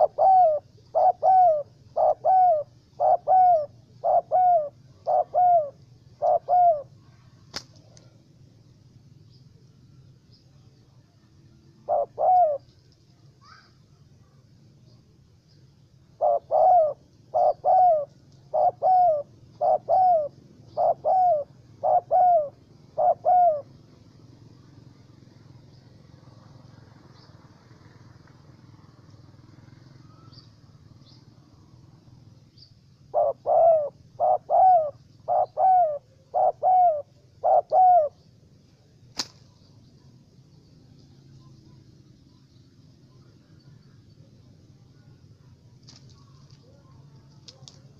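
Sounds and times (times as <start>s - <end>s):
dove cooing: 0.0s - 8.2s, 11.7s - 12.8s, 16.0s - 32.2s, 33.0s - 38.9s
faint high chirps: 23.6s - 33.1s, 33.9s - 47.9s.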